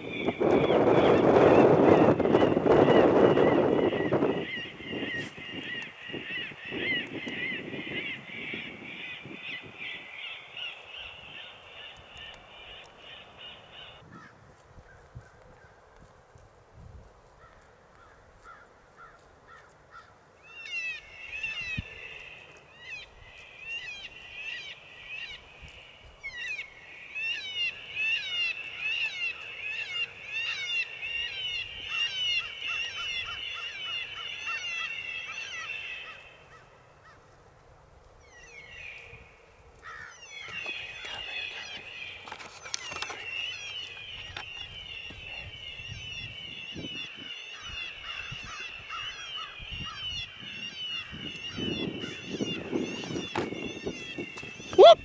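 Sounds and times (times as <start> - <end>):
electronic animal call squealing: 54.8 - 55.0.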